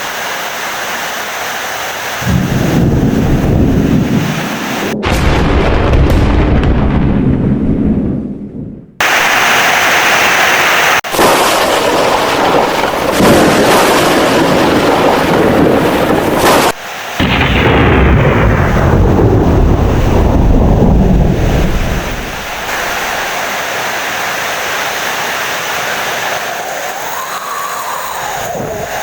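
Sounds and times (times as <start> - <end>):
rain hiss: 0.0 - 5.0, 9.0 - 29.0
deep thunder rumble: 2.2 - 9.3, 11.1 - 23.4.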